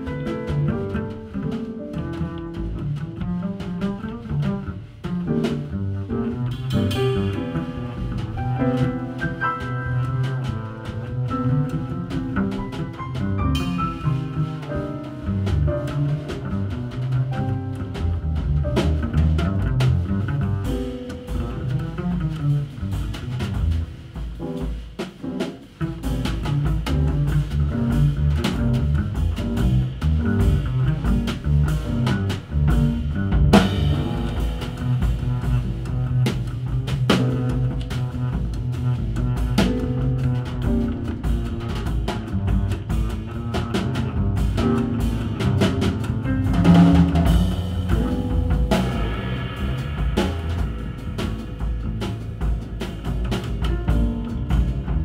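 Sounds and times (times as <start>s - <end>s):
double bass: 0.0s - 55.0s
drum and cymbal strikes: 20.6s - 43.2s, 43.8s - 55.0s.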